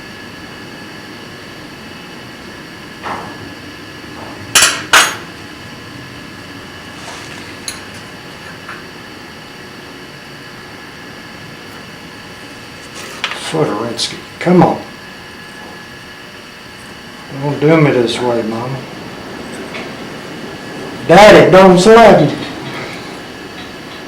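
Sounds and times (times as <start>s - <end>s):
hammer striking metal: 4.6s - 5.2s.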